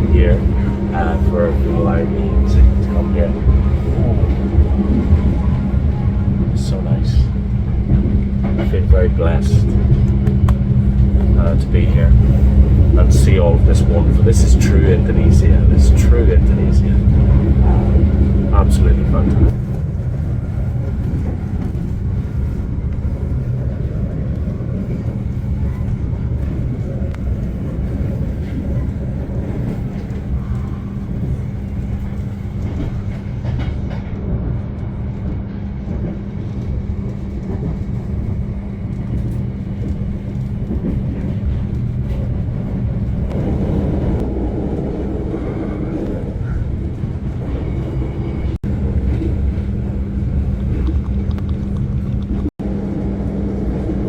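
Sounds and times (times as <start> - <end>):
low hum: 0.0 - 54.0
passenger train wheels rumbling: 0.0 - 54.0.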